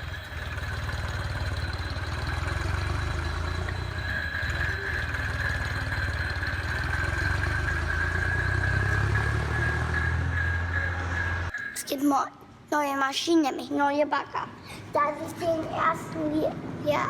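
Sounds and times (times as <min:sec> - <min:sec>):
low engine-like hum: 0:00.0 - 0:11.6.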